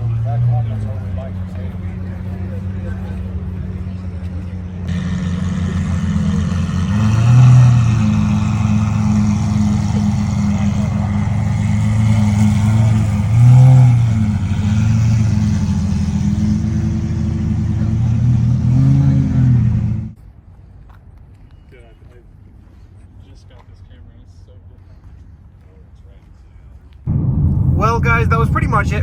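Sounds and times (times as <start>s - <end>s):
car engine running: 0.0s - 20.2s, 27.1s - 29.0s
engine revs: 0.0s - 20.2s.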